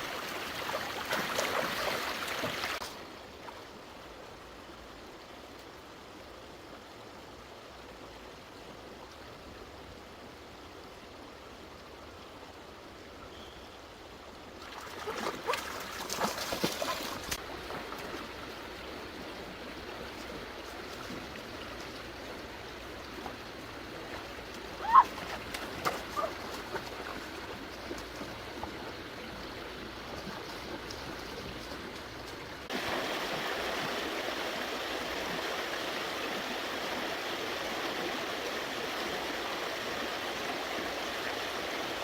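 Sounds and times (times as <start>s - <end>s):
water splashing: 0.0s - 3.0s, 14.6s - 18.3s, 22.8s - 35.4s
stream water flowing: 0.0s - 42.0s.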